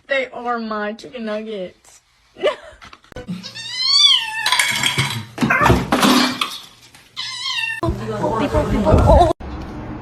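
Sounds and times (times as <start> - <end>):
cat meowing: 3.4 - 4.7, 7.2 - 7.8.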